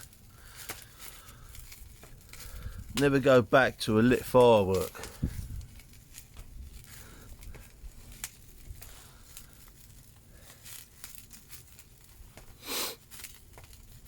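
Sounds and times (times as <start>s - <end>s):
fire crackling: 0.0s - 14.0s
short hiss: 12.6s - 13.0s.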